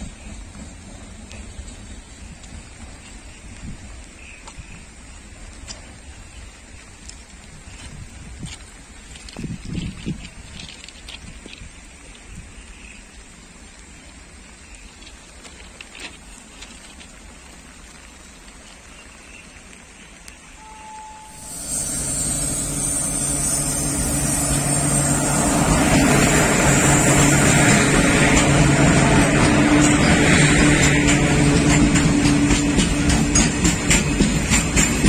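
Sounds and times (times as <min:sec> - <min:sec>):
locomotive engine hum: 0:00.0 - 0:12.4, 0:19.5 - 0:35.0
train wheels rumbling on rails: 0:00.0 - 0:12.7, 0:20.6 - 0:35.0.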